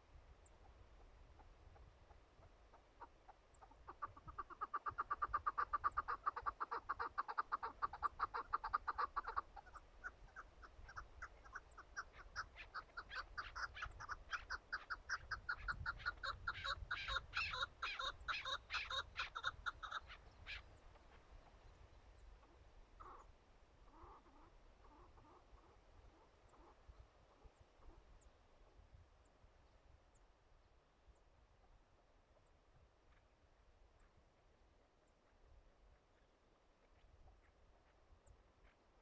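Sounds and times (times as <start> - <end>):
partridges clucking calls: 1.4 - 21.6, 22.4 - 28.3.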